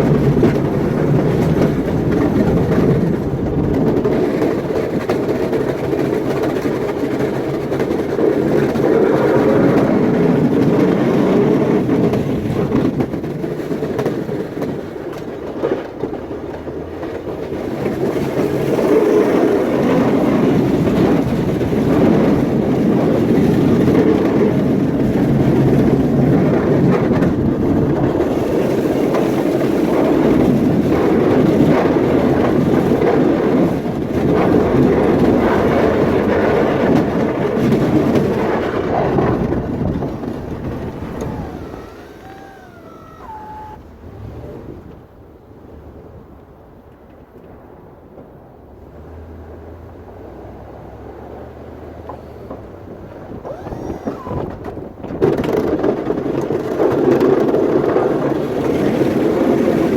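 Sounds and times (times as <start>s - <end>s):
snow-clearing machine droning: 25.1s - 45.0s, 51.3s - 55.6s.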